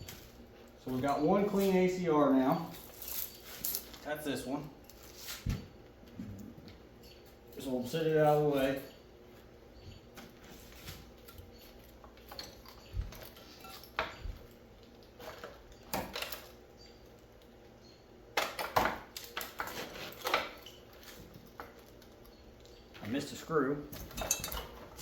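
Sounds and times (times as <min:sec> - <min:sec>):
metal parts clinking and knocking: 0:23.9 - 0:25.0.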